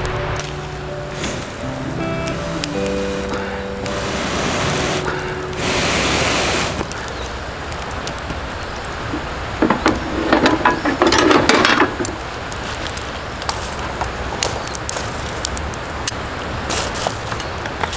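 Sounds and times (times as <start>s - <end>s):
brief hiss: 0.0s - 7.0s
hard objects clicking and rattling: 6.8s - 13.1s.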